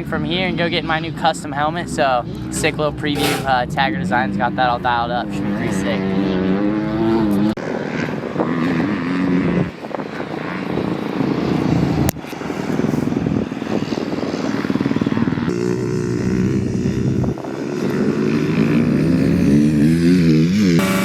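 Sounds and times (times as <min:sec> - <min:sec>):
motocross bike engine revving: 0:03.1 - 0:03.7, 0:14.9 - 0:21.0.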